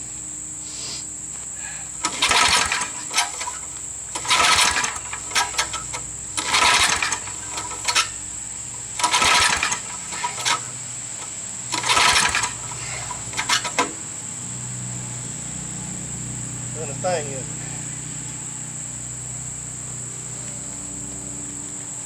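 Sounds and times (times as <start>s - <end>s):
mower engine pull-start cranking: 1.9s - 14.2s.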